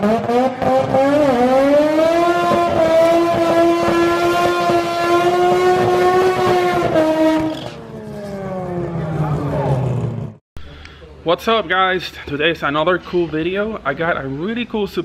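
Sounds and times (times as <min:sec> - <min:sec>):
drag car engine revving high: 0:00.0 - 0:10.4.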